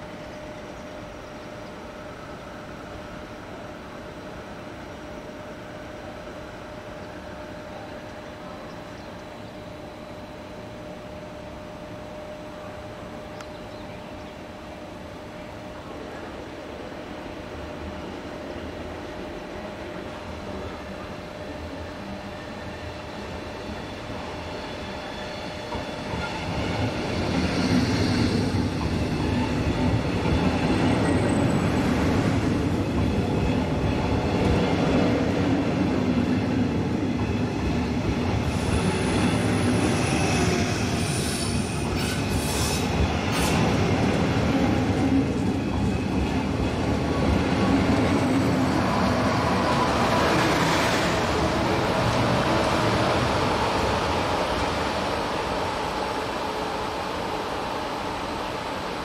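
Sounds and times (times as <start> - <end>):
train wheels rumbling and clattering: 22.5 - 57.1.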